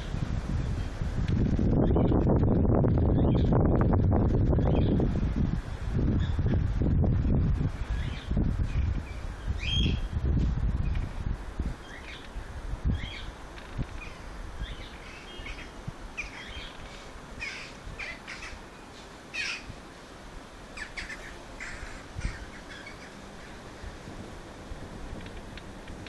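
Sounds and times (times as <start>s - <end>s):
birds calling: 7.9s - 10.1s, 11.8s - 19.8s, 20.7s - 24.2s.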